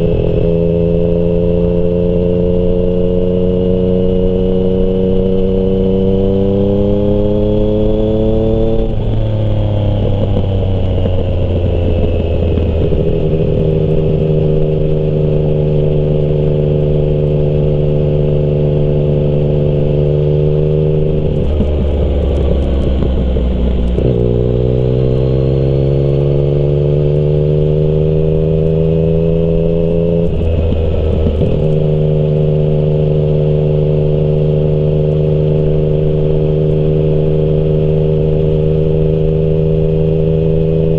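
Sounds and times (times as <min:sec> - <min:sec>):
motorcycle engine under way: 0:00.0 - 0:40.9.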